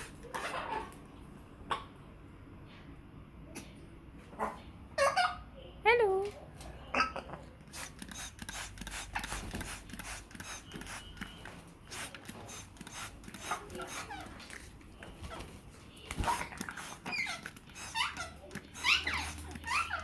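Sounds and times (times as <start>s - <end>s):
parrots squeaking and chattering: 0.0s - 1.0s, 5.0s - 5.4s, 8.2s - 20.0s.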